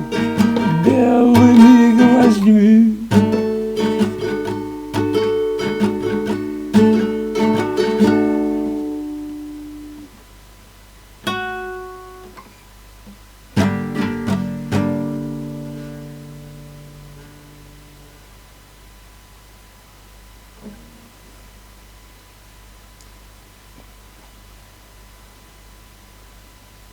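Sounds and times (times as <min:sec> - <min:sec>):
acoustic guitar playing: 0:00.0 - 0:10.2, 0:11.2 - 0:12.4, 0:13.5 - 0:18.3.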